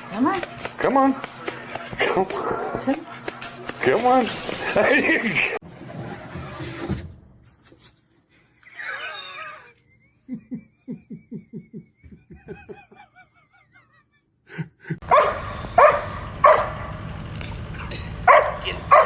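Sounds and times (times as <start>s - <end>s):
dog barking: 15.1s - 16.9s, 18.2s - 19.0s.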